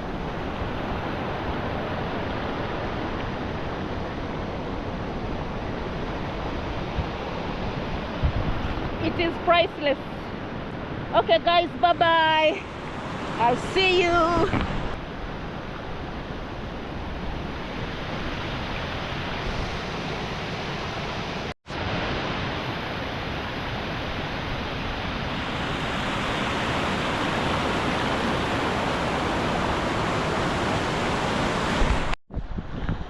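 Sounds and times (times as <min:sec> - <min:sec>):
river rushing over rapids: 0:17.5 - 0:32.2.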